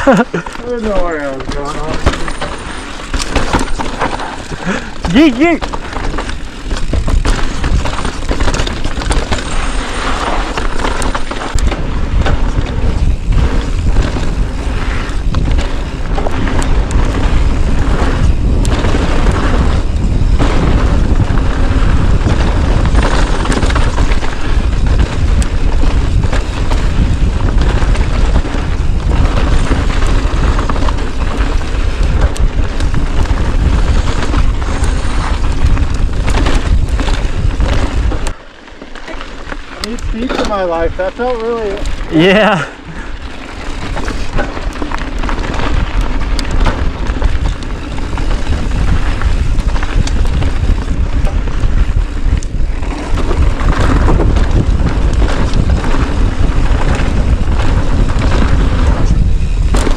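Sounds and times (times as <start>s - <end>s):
wind buffeting microphone: 0.0s - 38.4s, 39.8s - 59.9s.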